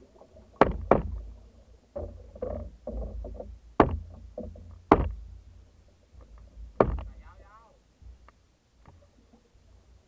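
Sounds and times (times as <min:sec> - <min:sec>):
paddles splashing through water: 0:00.0 - 0:07.2.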